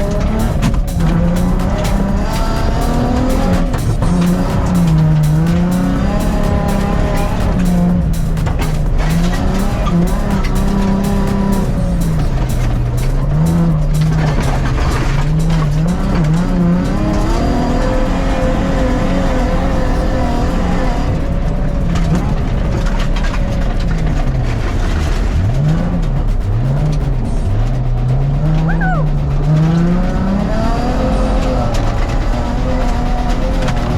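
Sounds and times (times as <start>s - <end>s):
tyres on gravel: 0.0s - 27.6s
car engine revving hard: 0.0s - 33.9s.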